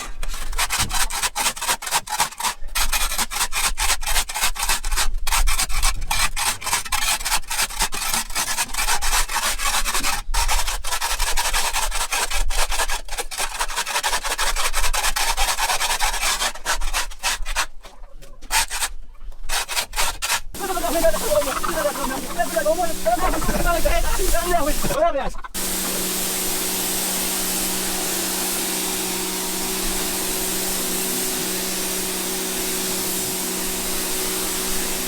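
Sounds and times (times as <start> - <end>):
brush scrubbing hard surface: 19.5 - 35.0.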